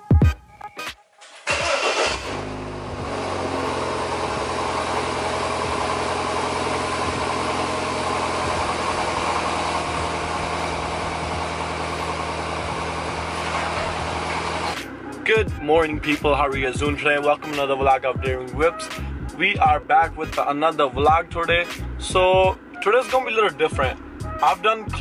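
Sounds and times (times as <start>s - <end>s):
car engine starting and idling: 1.2s - 25.0s.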